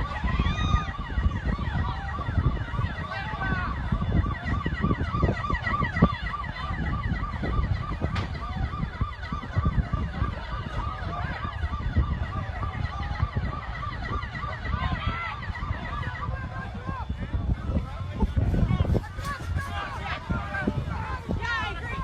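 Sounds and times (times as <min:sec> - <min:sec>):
siren rising and falling: 0:00.0 - 0:22.0
heavy low rumble: 0:06.5 - 0:22.0.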